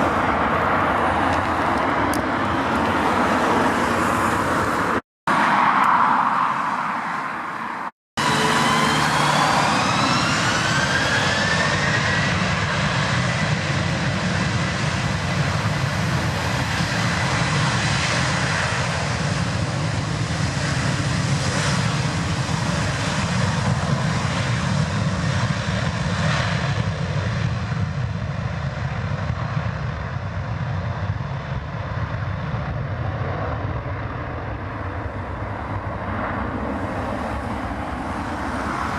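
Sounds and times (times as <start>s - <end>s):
jet engines spooling up: 8.2s - 27.0s.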